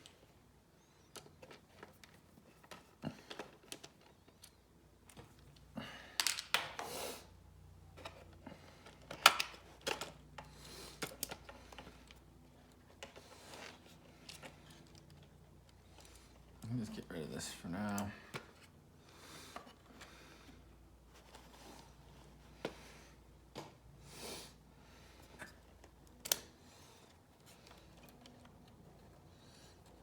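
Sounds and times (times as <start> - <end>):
rustling and scraping: 7.8 - 24.0
small plastic and metal clicks: 25.3 - 28.8.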